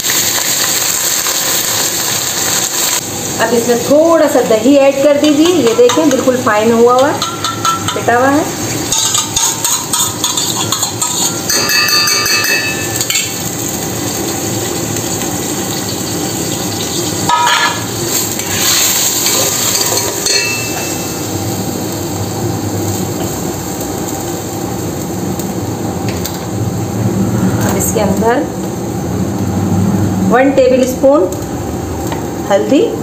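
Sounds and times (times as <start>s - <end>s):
food sizzling in hot oil: 0.0s - 33.0s
metal spoon scraping pot: 8.9s - 12.8s.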